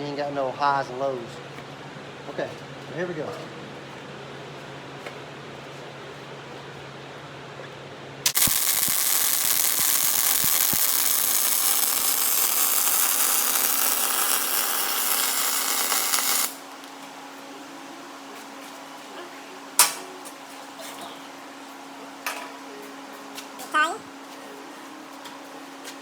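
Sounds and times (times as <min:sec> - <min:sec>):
welding arc buzzing and crackling: 0:08.2 - 0:17.0.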